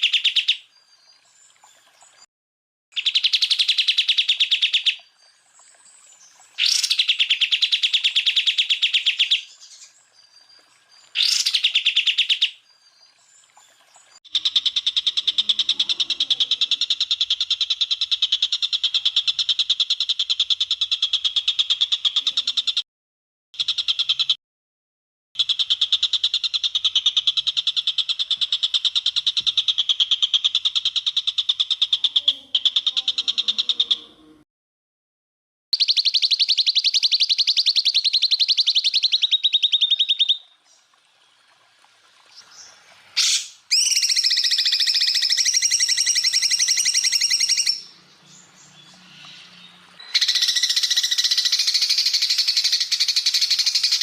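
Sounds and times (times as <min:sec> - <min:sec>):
bird singing rapid shrill notes: 0:06.6 - 0:09.9, 0:11.2 - 0:12.6, 0:35.8 - 0:40.5, 0:43.2 - 0:54.0.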